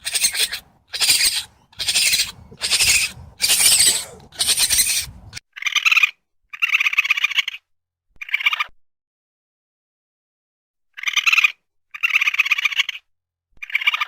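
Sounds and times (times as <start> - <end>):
raccoon rasping screeches: 0.0 - 5.4
raccoon pulsed trilling calls: 0.0 - 5.9.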